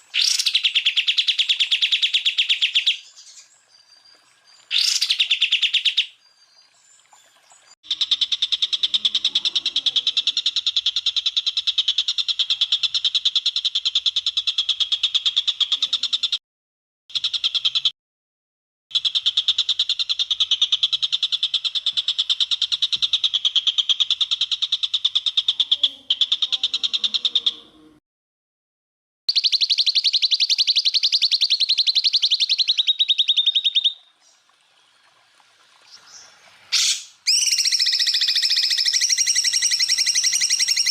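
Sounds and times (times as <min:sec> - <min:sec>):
bird rattling trill: 0:36.8 - 0:40.9.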